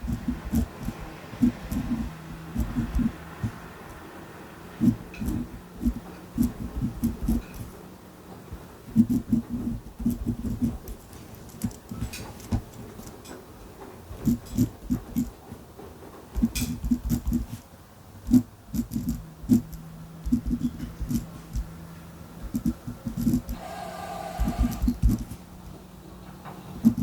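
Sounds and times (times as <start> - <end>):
pen writing on paper: 0.0 - 3.7, 4.8 - 7.7, 8.9 - 11.0, 16.4 - 17.6, 24.4 - 25.4
low steady hum: 0.0 - 15.5, 16.3 - 27.0.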